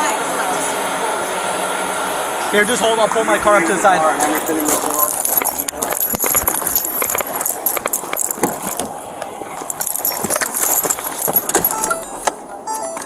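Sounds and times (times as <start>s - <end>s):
keys rattling and clinking: 4.2s - 12.3s
short electronic beeps: 11.7s - 12.1s.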